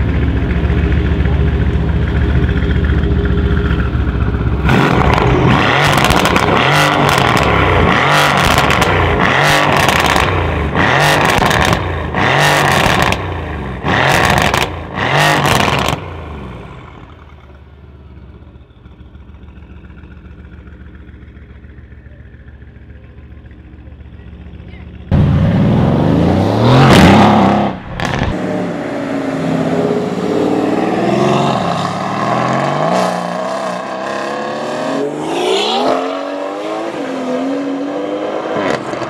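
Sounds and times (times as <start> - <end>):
car engine idling: 0.0 - 10.8, 16.0 - 26.9
car engine revving: 0.0 - 17.4, 25.0 - 39.0.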